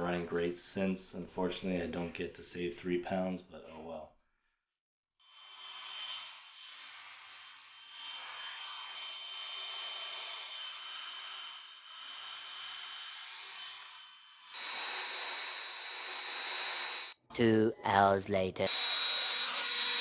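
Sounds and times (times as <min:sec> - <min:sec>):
hot-air gun blowing: 0:05.3 - 0:17.2.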